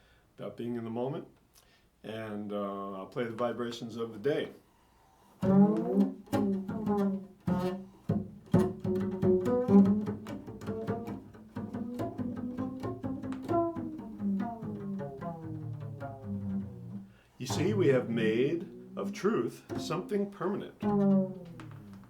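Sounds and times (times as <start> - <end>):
plucked string instrument notes: 5.4 - 22.0.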